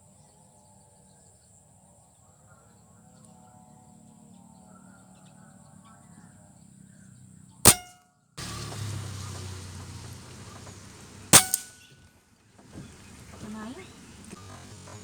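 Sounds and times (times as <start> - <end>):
air rifle shots: 7.7 - 8.0, 11.3 - 11.9.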